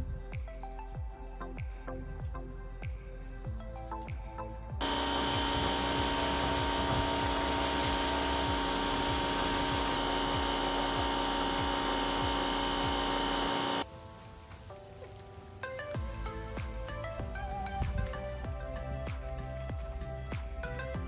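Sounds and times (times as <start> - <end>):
background music: 0.0 - 21.0
electric motor whine: 4.8 - 13.8.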